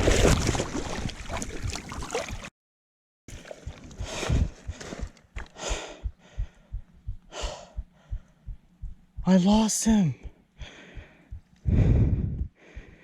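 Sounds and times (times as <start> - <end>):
river water splashing: 0.0 - 2.5
soft low thumps: 3.6 - 13.0
heavy breathing and gasps: 10.6 - 13.0.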